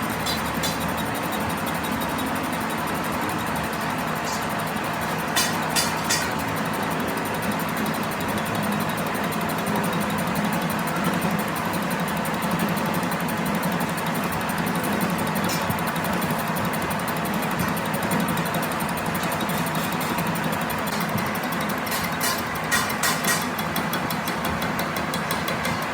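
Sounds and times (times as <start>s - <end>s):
machine humming: 0.0s - 9.4s.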